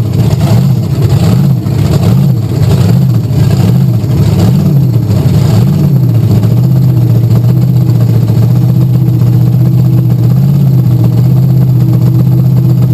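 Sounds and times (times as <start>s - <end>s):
truck engine idling loudly: 0.0s - 12.9s.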